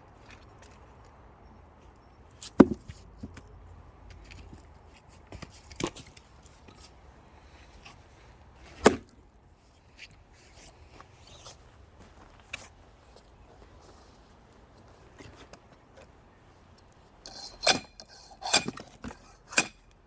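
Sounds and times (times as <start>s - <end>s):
axe striking firewood: 2.6s - 2.9s, 8.8s - 9.1s.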